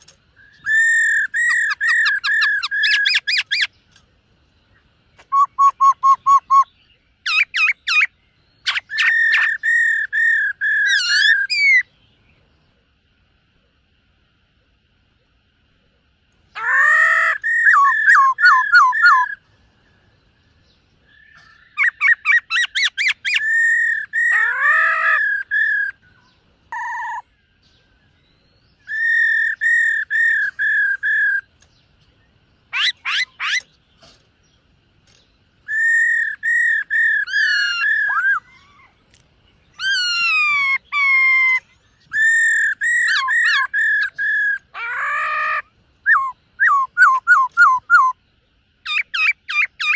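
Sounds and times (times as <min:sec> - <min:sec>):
bird singing whistled phrases: 0:00.4 - 0:03.7, 0:05.2 - 0:11.9, 0:16.6 - 0:19.4, 0:28.2 - 0:31.5, 0:35.6 - 0:38.9, 0:39.7 - 0:48.2.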